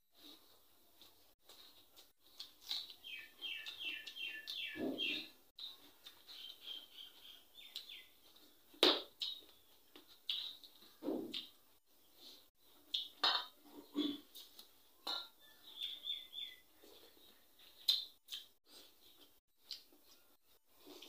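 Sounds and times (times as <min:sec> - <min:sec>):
clicks and smacks from eating: 0:01.0 - 0:04.8, 0:07.7 - 0:11.6, 0:12.7 - 0:15.4, 0:17.6 - 0:20.2
bird chirping: 0:02.6 - 0:08.6, 0:15.0 - 0:19.4.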